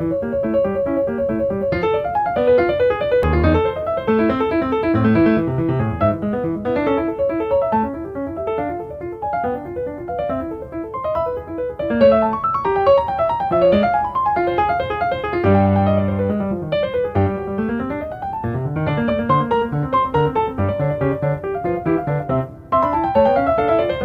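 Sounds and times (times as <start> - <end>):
solo piano quick notes: 0.0 - 24.0
deep piano bass note: 3.2 - 6.6.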